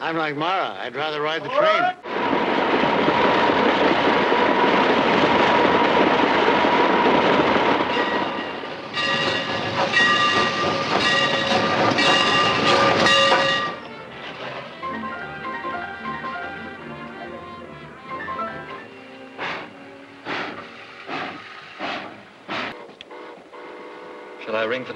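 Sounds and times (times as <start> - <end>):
train rail noise: 2.0 - 24.9
train whistle blasts: 22.8 - 24.6.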